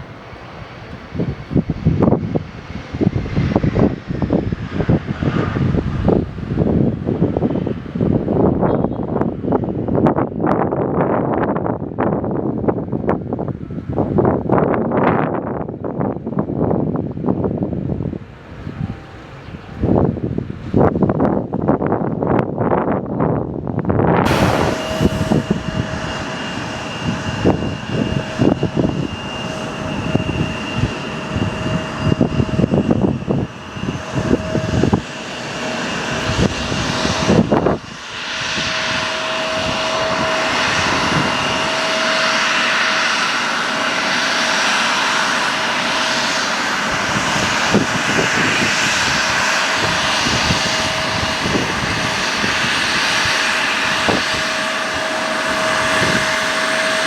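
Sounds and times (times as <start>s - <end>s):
airplane engines running: 0.0s - 57.0s
wind buffeting microphone: 0.0s - 57.0s
steady whine: 24.0s - 57.0s.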